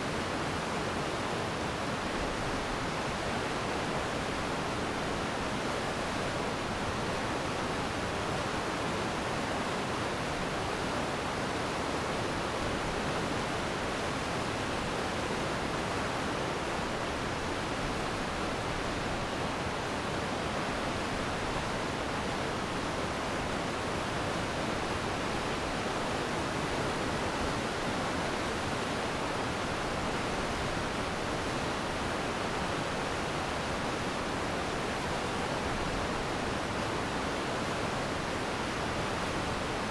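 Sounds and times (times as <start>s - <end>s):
stream rushing: 13.1s - 39.9s.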